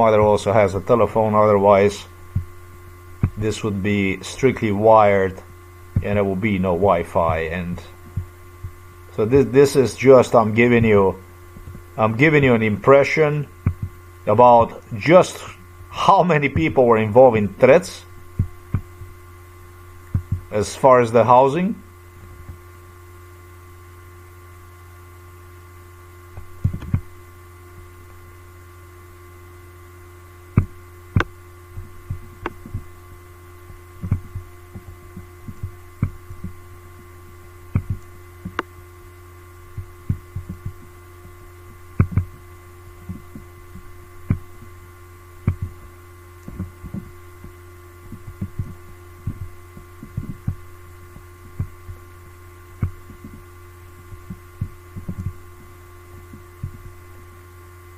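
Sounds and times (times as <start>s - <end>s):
electrical hum: 0.0s - 57.9s
faint steady tones: 0.0s - 57.9s
sharp clicks and soft knocks: 3.2s - 3.4s, 13.6s - 14.0s, 26.3s - 27.1s, 30.5s - 32.9s, 33.6s - 36.6s, 37.7s - 38.7s, 39.8s - 42.4s, 45.4s - 52.0s, 52.8s - 53.5s, 54.1s - 57.0s.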